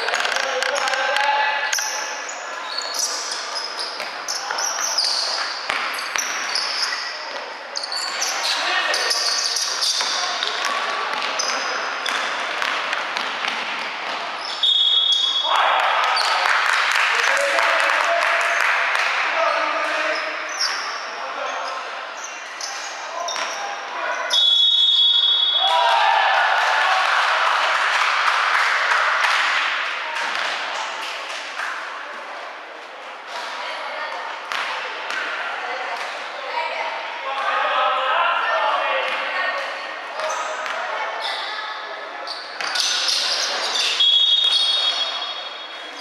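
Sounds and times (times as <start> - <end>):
sneakers squeaking: 0.0 - 16.4, 19.5 - 25.8, 40.2 - 46.0
basketball bouncing on court: 5.7 - 6.5, 9.9 - 14.2
spectators cheering and clapping: 15.4 - 19.2, 25.6 - 30.0.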